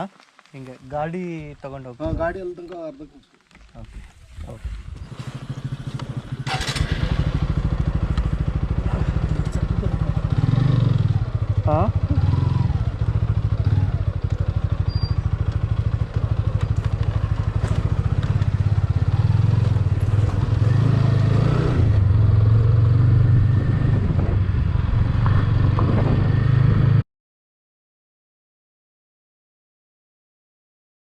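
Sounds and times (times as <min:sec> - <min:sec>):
road and wind noise: 0:00.0 - 0:27.0
vehicle engine droning: 0:04.9 - 0:27.0.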